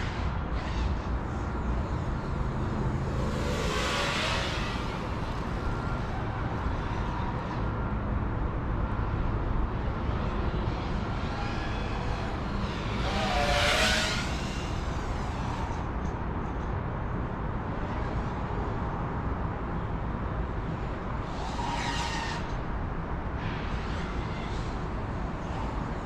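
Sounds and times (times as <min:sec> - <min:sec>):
rush of air noise: 0:00.0 - 0:09.4
quadcopter motors whining: 0:00.0 - 0:16.2, 0:20.8 - 0:22.7.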